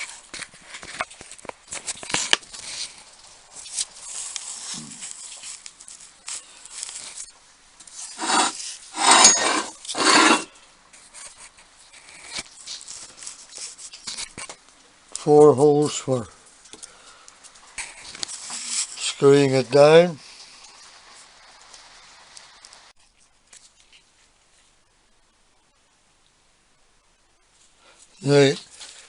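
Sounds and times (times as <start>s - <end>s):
metal parts scraping: 8.1s - 10.5s.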